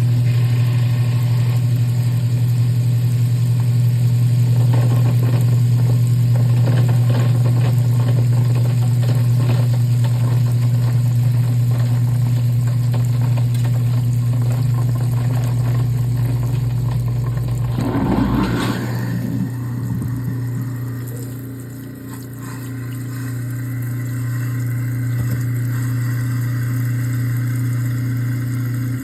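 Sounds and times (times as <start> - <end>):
garbage disposal motor hum: 0.0 - 29.0
crackling rattle: 4.6 - 21.4
loud rumble: 16.1 - 21.5.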